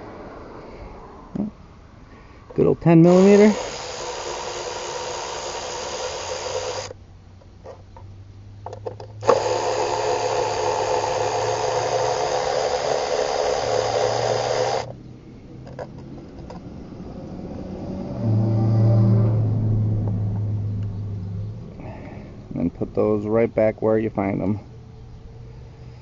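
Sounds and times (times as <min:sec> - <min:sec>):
power tool running: 0:03.0 - 0:07.0, 0:09.2 - 0:14.9.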